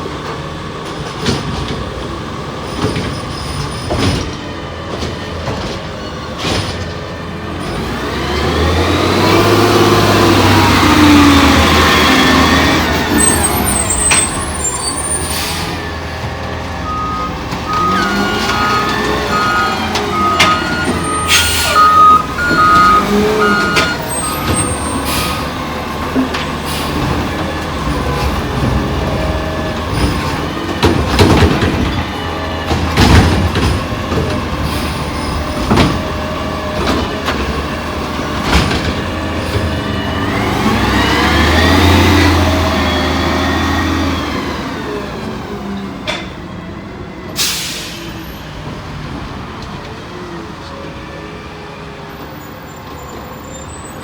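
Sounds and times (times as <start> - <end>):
diesel engine running: 7.0 - 48.0
backup alarm beeping: 16.8 - 24.7
air brake hisses: 21.2 - 22.0, 47.4 - 48.3.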